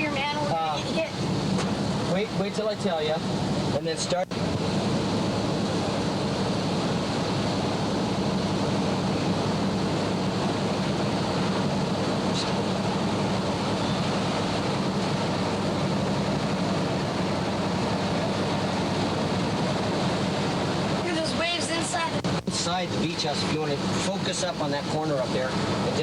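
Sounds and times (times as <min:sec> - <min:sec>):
heavy surf pounding shore: 0:00.0 - 0:26.0
hurricane wind: 0:00.0 - 0:26.0.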